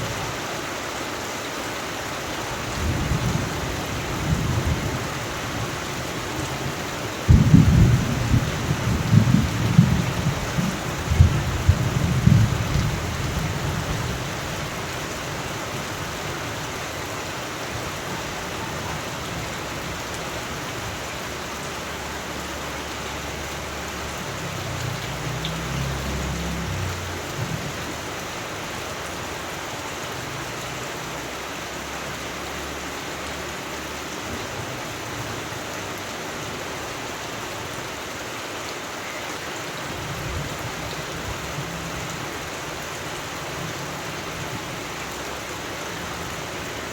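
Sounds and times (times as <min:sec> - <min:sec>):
steady rain falling: 0:00.0 - 0:46.9
distant thunder rolls: 0:07.2 - 0:14.2.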